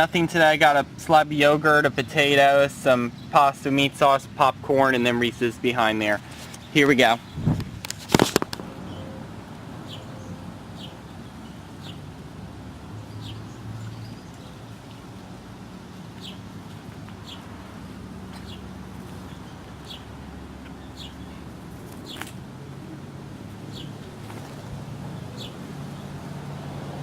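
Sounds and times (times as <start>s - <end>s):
bird chirping: 20.7s - 22.3s, 23.7s - 24.0s, 25.1s - 26.1s.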